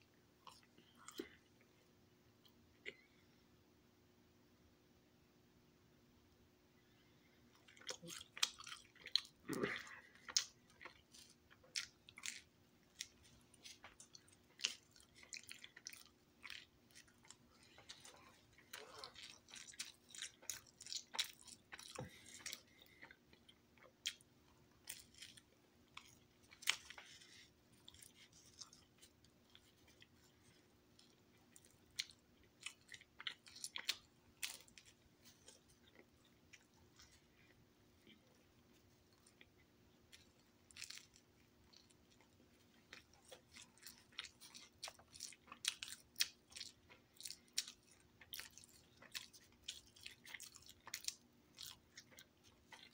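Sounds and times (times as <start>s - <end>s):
faint steady hum: 0.0s - 52.9s
person chewing pizza: 0.4s - 1.7s, 6.9s - 52.9s.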